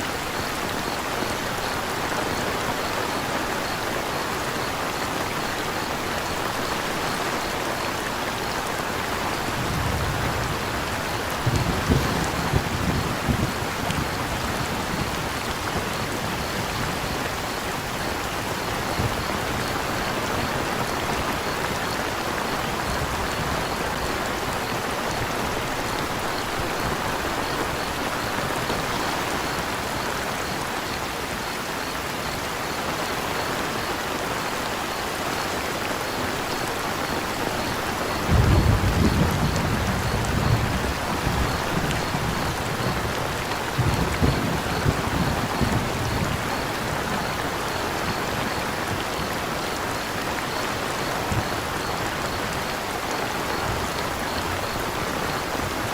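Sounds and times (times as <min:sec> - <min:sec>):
crickets chirping: 0:00.0 - 0:55.9
steady rain falling: 0:00.0 - 0:55.9
thunder rumbling: 0:09.5 - 0:17.5, 0:38.2 - 0:47.5.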